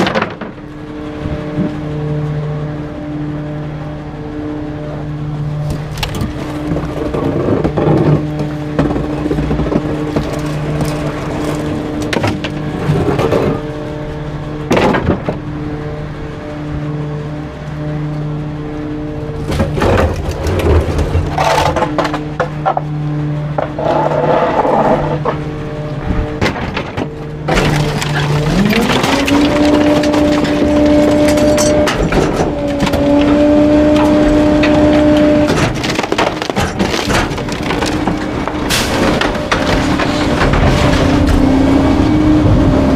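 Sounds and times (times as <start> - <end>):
garbage truck engine: 0.0 - 42.9
packer crushing waste: 5.6 - 14.0, 19.2 - 42.9.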